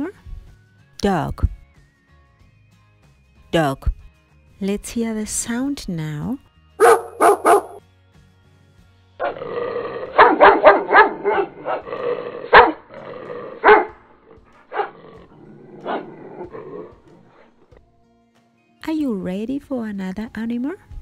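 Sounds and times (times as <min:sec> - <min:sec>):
dog barking: 0:06.8 - 0:07.8, 0:10.1 - 0:11.9, 0:12.5 - 0:12.9, 0:13.6 - 0:14.0, 0:14.6 - 0:15.0, 0:15.8 - 0:16.1.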